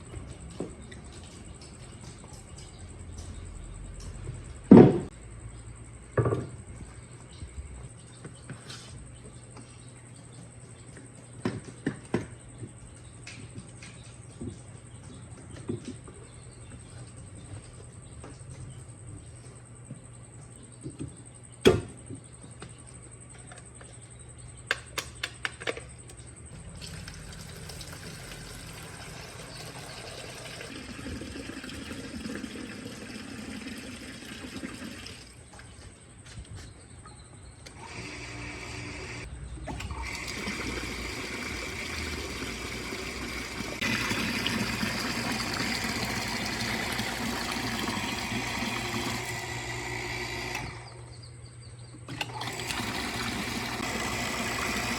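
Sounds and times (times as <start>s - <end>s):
water pump humming: 26.5s - 35.6s, 37.6s - 51.2s, 52.1s - 54.9s
water rushing and splashing: 40.1s - 49.2s.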